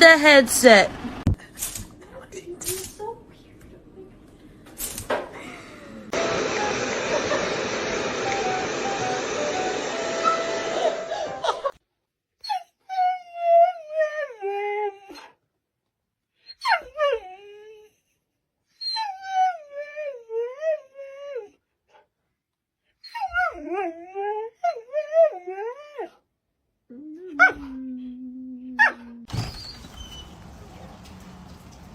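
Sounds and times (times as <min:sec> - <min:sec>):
dog howling and whining: 0:23.0 - 0:26.2.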